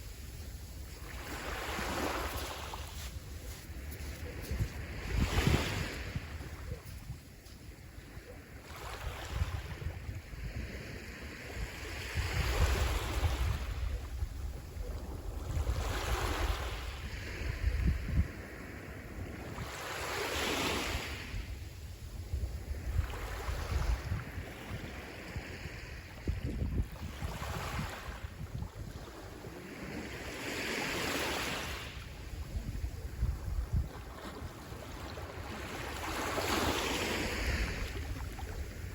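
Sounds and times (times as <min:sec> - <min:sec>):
sea waves breaking: 0:00.0 - 0:13.8, 0:23.0 - 0:32.4, 0:33.0 - 0:38.9
wind rumble on microphone: 0:00.0 - 0:38.9.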